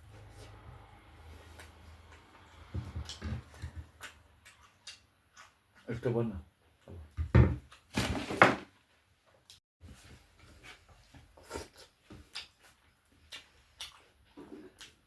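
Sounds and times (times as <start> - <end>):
chewing and wet mouth smacks: 3.0 - 5.8, 11.4 - 15.0.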